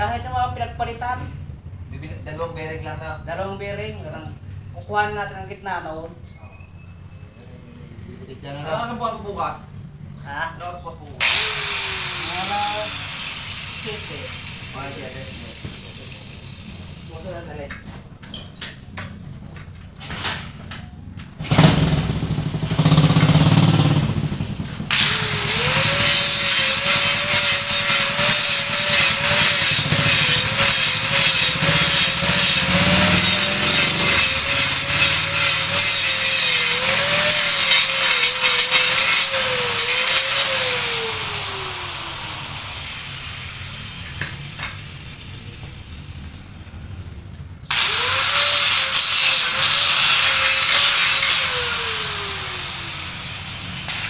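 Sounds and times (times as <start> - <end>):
power tool grinding metal: 11.2 - 17.2, 21.5 - 46.4, 47.7 - 54.0.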